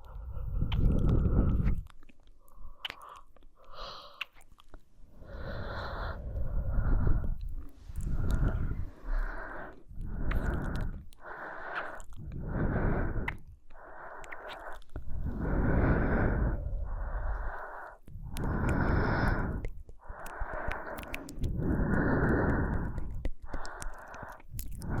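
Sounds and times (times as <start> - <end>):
woman breathing slowly: 0.0 - 4.4, 5.0 - 25.0.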